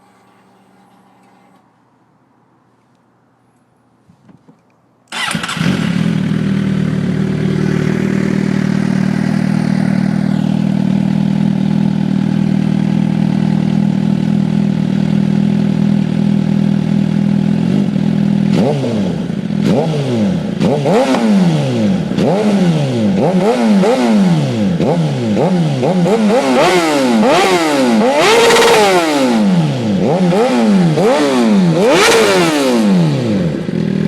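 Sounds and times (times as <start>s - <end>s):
motorcycle engine idling: 5.2s - 26.6s, 32.8s - 34.0s
motorcycle throttle blips: 17.2s - 34.0s.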